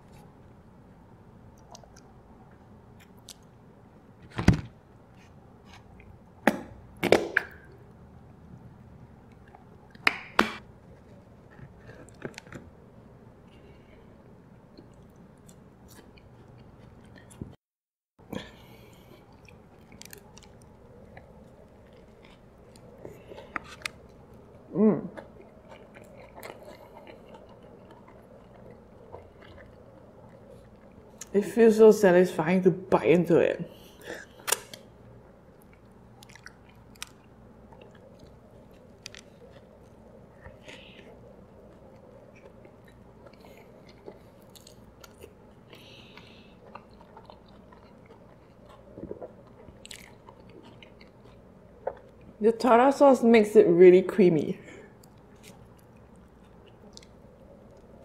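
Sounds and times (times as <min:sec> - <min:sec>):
wet chewing: 0:18.3 - 0:31.4, 0:33.8 - 0:52.4, 0:54.9 - 0:58.0.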